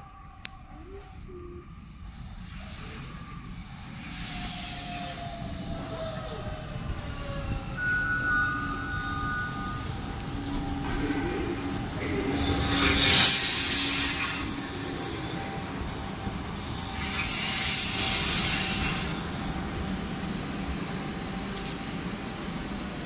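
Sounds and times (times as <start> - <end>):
train wheels on rails: 2.0 - 23.0
high wheel squeal: 7.6 - 10.6, 12.4 - 15.9.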